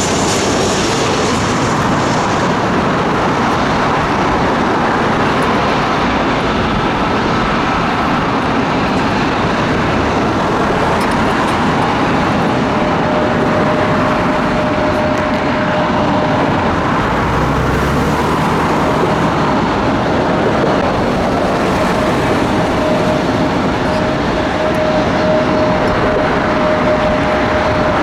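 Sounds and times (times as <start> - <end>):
faint high whine: 0.0 - 19.6
jet engines roaring: 0.0 - 28.0.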